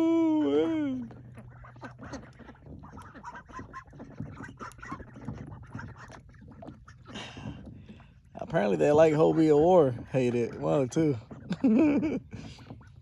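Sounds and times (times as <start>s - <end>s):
ducks quacking: 0.4s - 7.2s.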